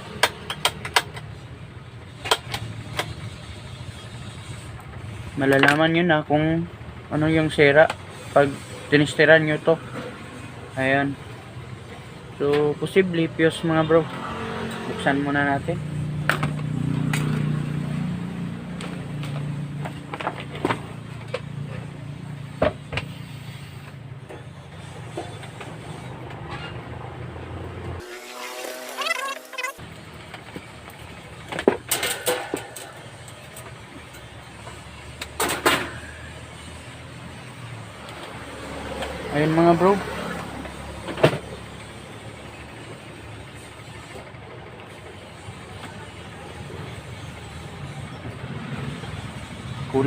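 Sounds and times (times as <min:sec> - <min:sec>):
clicks and knocks of fan parts: 0:00.0 - 0:01.4, 0:02.2 - 0:03.2, 0:04.8 - 0:05.9, 0:16.2 - 0:17.6, 0:18.7 - 0:21.8, 0:30.2 - 0:36.1.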